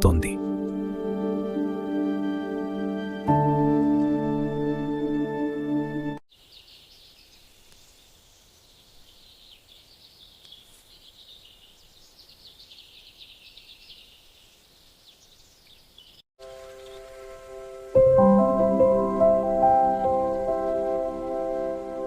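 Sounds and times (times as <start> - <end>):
soft music: 0.0 - 6.2, 16.4 - 22.0
chorus of small birds chirping: 6.3 - 17.1.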